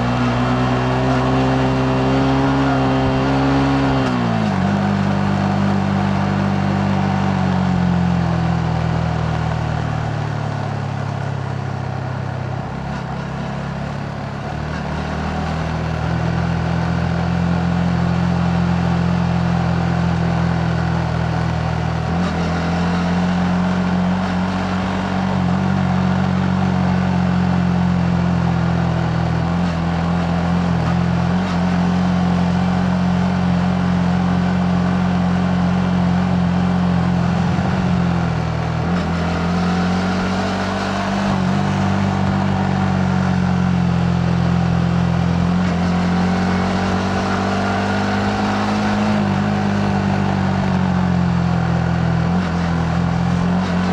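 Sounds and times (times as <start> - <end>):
motorcycle engine running: 0.0 - 53.9
wind and road noise: 0.0 - 53.9.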